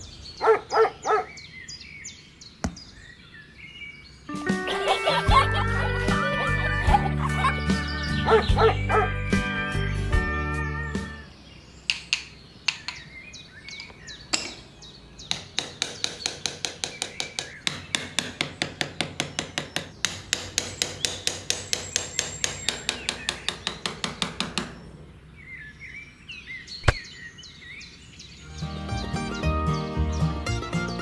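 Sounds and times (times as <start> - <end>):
hammer tapping posts into sand: 11.9 - 13.1, 15.2 - 24.8.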